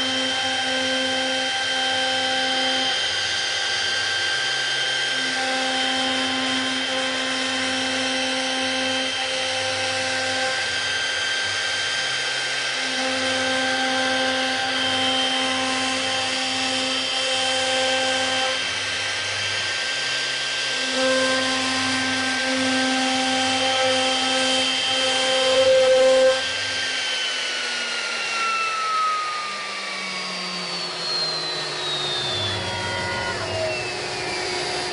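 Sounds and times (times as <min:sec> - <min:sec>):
milling machine motors whining: 0:00.0 - 0:34.9.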